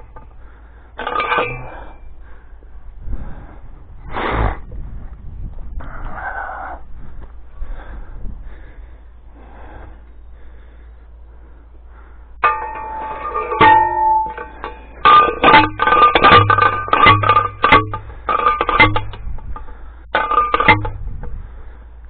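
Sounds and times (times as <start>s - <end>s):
post driver clanging on steel post: 1.0s - 2.1s, 12.4s - 21.0s.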